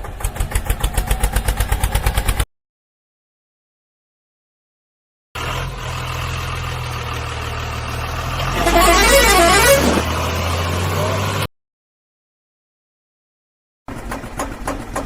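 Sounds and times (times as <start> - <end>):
vehicle engine running: 5.4 - 11.5
wavering tone rising and falling: 8.6 - 10.1.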